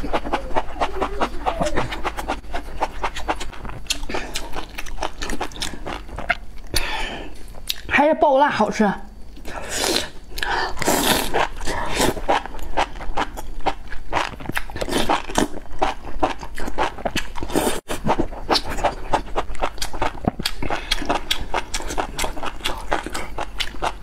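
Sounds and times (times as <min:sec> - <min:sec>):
slurping and chewing: 0:00.0 - 0:07.8, 0:09.3 - 0:24.0.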